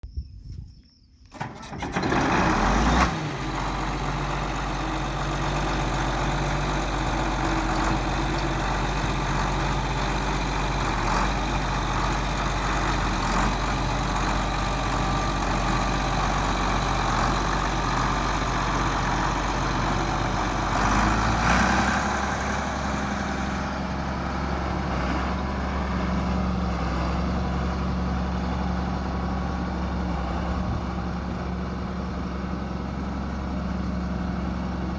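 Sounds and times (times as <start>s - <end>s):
tractor diesel engine starting: 1.2s - 34.9s.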